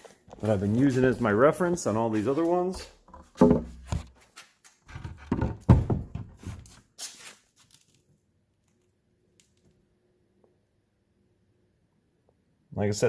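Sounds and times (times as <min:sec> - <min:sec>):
wooden boards knocking and scraping: 0:03.0 - 0:04.1, 0:04.9 - 0:06.6.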